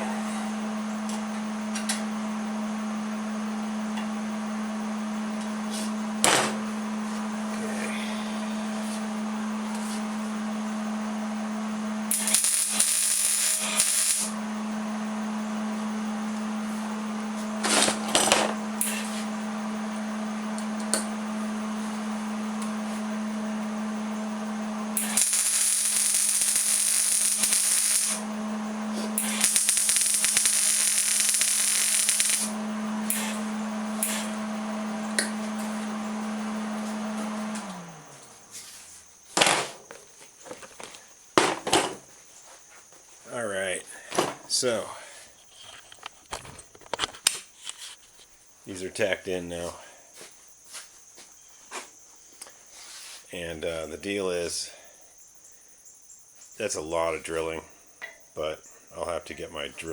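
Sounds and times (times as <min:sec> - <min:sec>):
arc welding crackling hiss: 0:12.1 - 0:14.4, 0:18.8 - 0:19.3, 0:25.0 - 0:34.4.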